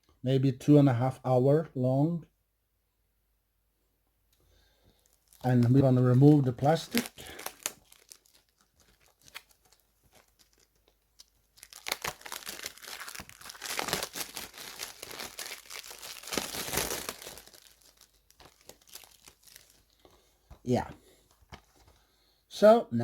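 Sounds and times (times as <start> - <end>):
plastic wrap crinkling: 4.8 - 22.0.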